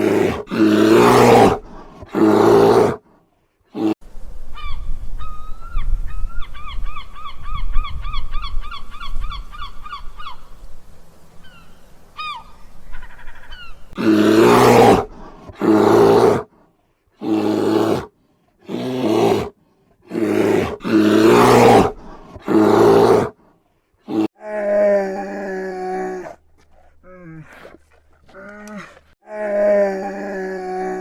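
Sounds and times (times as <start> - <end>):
animal rough calls: 20.1 - 23.4.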